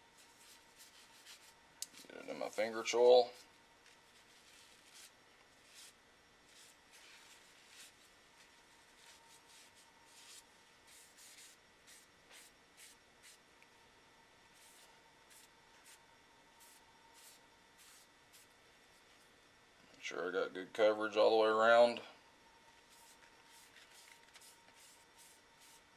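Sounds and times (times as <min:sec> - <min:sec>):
paper towel rubbing on wood: 0:04.1 - 0:08.1, 0:08.8 - 0:13.4, 0:22.9 - 0:25.8.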